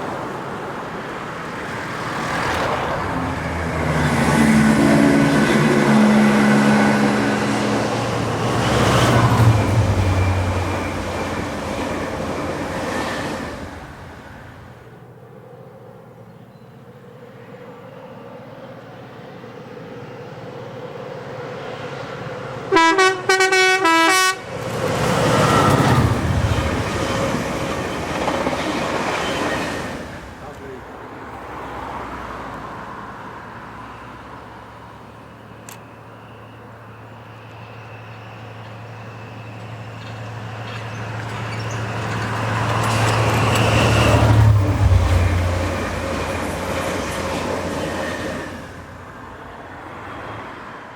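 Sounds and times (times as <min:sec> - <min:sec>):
train rumble: 0:00.0 - 0:15.1, 0:20.9 - 0:50.5
train wheel and engine noise: 0:00.0 - 0:50.9
train horn short blasts: 0:22.7 - 0:24.5.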